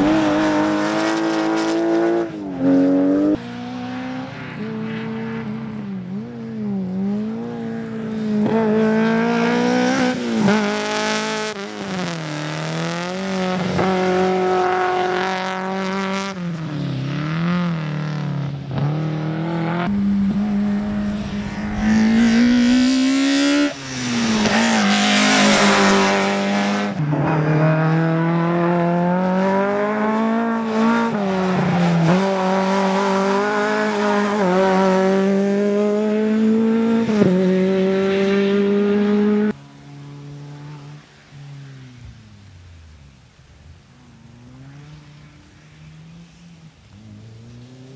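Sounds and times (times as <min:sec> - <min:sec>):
car engine revving: 0:17.1 - 0:27.0.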